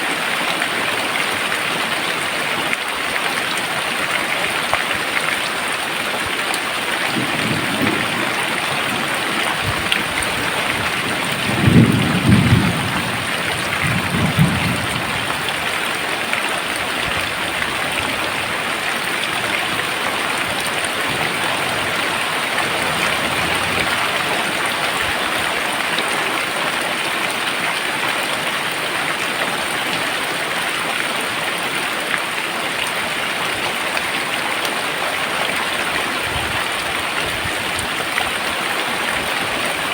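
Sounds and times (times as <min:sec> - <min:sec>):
heavy rain pouring: 0:00.0 - 0:39.9
thunder rumbling: 0:07.1 - 0:15.8.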